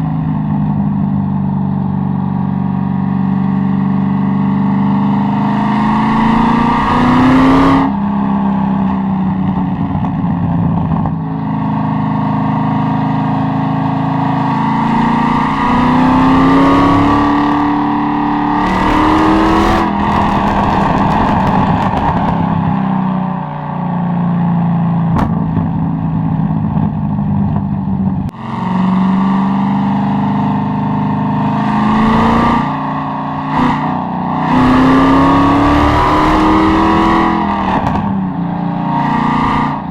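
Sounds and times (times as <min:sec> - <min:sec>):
sports car engine revving: 0:00.0 - 0:23.2, 0:24.4 - 0:39.9
exhaust pops: 0:19.8 - 0:22.6, 0:25.1 - 0:28.4, 0:37.7 - 0:38.3.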